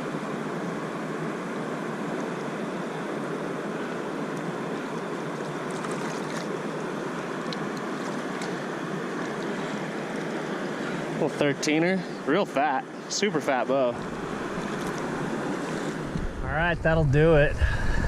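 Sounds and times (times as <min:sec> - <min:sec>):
river water rushing: 0:01.9 - 0:11.5, 0:13.9 - 0:16.4
faint ticks or small splashes: 0:05.4 - 0:06.6.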